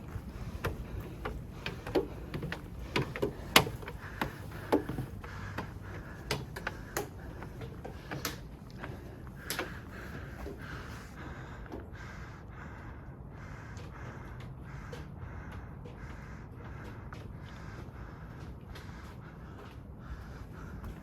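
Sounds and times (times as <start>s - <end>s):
footsteps on rocky trail: 0.0s - 12.1s, 13.4s - 21.0s.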